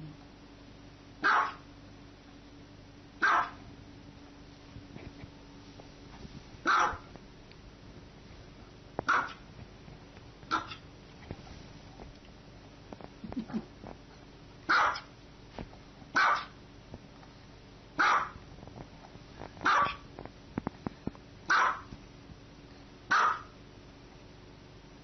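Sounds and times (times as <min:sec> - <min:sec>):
small dog barking: 0:01.2 - 0:01.7, 0:03.2 - 0:03.7, 0:06.6 - 0:07.1, 0:09.0 - 0:09.4, 0:10.5 - 0:10.8, 0:14.7 - 0:15.1, 0:16.1 - 0:16.6, 0:18.0 - 0:18.4, 0:19.6 - 0:20.0, 0:21.5 - 0:21.9, 0:23.1 - 0:23.6.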